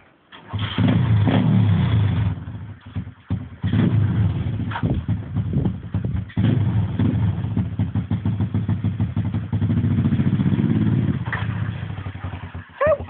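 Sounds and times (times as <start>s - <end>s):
pit bike engine revving: 0.4s - 13.0s.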